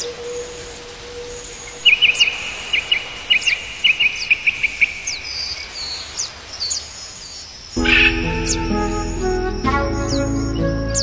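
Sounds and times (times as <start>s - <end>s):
small birds chirping: 0.0s - 11.0s
steady outdoor hiss: 0.0s - 11.0s
high down-slurred bird calls: 7.8s - 11.0s.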